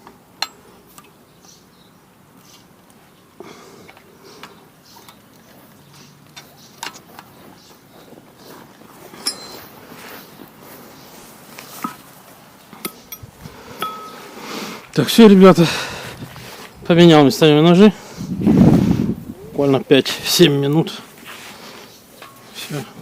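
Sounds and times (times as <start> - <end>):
ringing metal strikes: 0.4 - 0.6, 9.2 - 9.7, 12.8 - 14.3
metallic clinks of tools: 9.2 - 9.8, 12.8 - 14.3.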